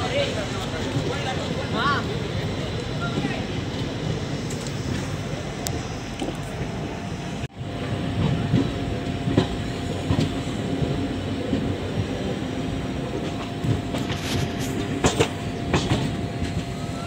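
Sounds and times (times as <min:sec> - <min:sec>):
train coach rumbling on track: 0:00.0 - 0:17.0
wheels knocking on rail joints: 0:13.2 - 0:16.7.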